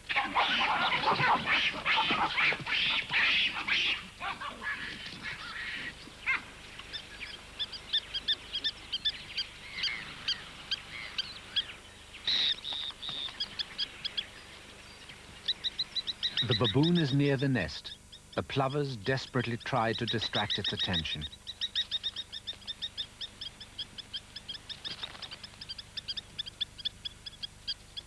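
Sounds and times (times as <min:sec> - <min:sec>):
plovers harsh alarm calls: 0:00.0 - 0:14.5, 0:15.4 - 0:28.0
plovers high piping notes: 0:16.4 - 0:21.3.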